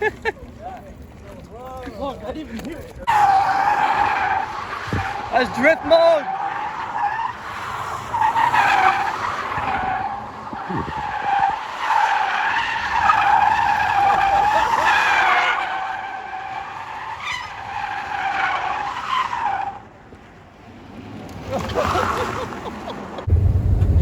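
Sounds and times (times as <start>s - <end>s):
tyres screeching: 2.9s - 19.8s.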